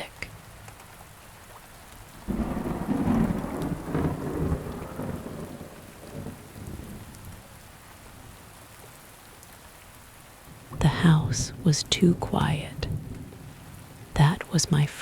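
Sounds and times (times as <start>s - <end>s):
steady rain: 0.0s - 15.0s
rolling thunderclap: 2.2s - 7.4s, 12.8s - 13.6s.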